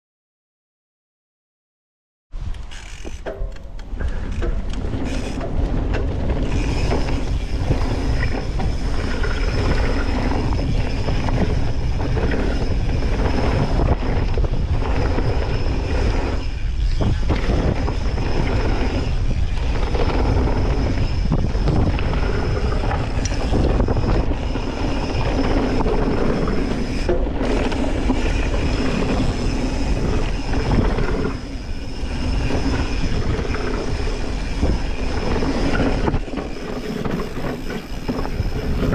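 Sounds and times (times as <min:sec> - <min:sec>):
knobby tyres on dirt: 0:02.4 - 0:38.9
bike rattling over bumps: 0:02.6 - 0:38.9
wind rushing over microphone: 0:03.4 - 0:38.9.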